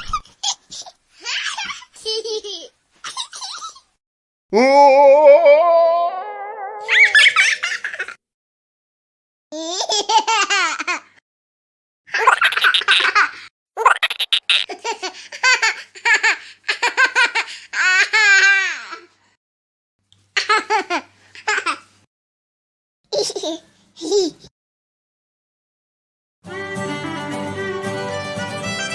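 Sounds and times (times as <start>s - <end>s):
high-pitched baby-like laughter: 0.0s - 3.9s, 6.7s - 8.2s, 12.1s - 19.0s, 23.1s - 24.5s.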